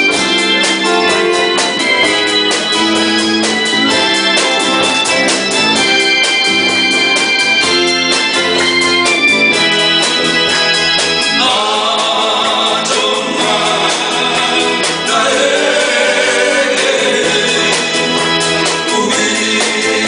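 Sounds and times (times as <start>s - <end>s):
wavering melody with vibrato: 0.0s - 19.1s
electronic organ chords: 0.0s - 20.0s.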